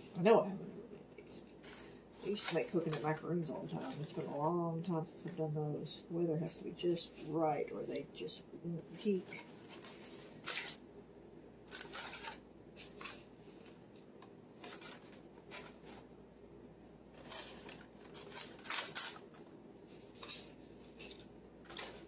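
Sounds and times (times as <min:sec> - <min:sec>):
food bag crinkling: 0:01.6 - 0:04.5, 0:09.2 - 0:10.8, 0:11.7 - 0:13.6, 0:14.6 - 0:16.0, 0:17.2 - 0:22.0.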